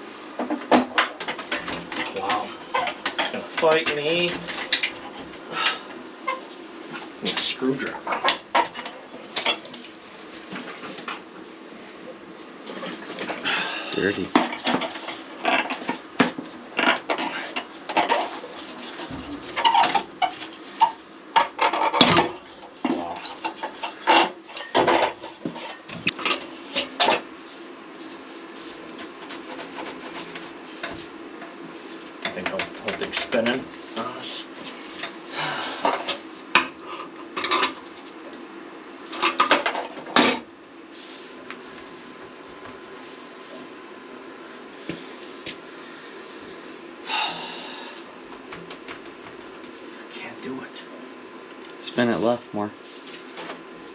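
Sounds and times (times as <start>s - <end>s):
low steady hum: 0.0s - 53.9s
metal tools clinking and scraping: 23.2s - 26.4s.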